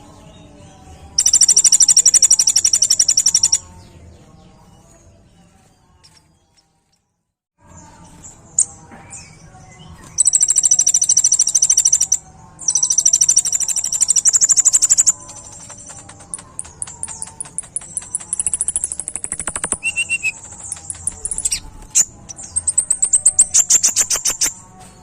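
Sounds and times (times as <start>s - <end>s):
sunbird singing rattling trills: 1.2s - 3.8s, 10.1s - 24.7s.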